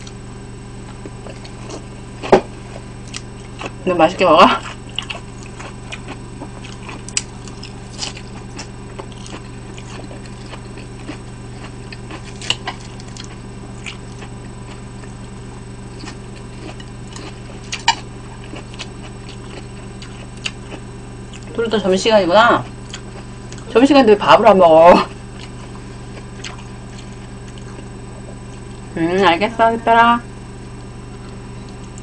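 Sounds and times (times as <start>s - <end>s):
steady low hum: 0.0s - 32.0s
person chewing food: 0.9s - 3.8s, 4.6s - 21.5s, 22.7s - 23.7s, 25.3s - 28.9s, 31.1s - 32.0s.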